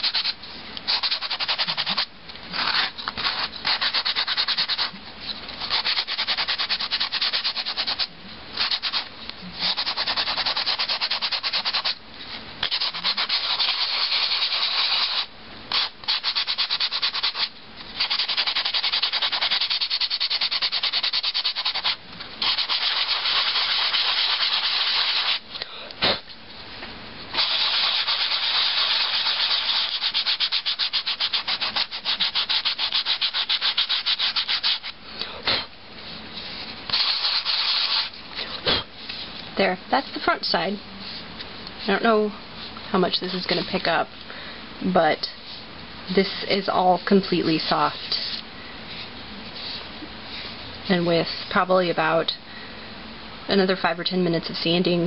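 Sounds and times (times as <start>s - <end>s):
sanding sponge rubbing: 0.0s - 5.0s, 5.6s - 12.0s, 12.6s - 25.4s, 27.4s - 35.0s, 36.4s - 38.2s.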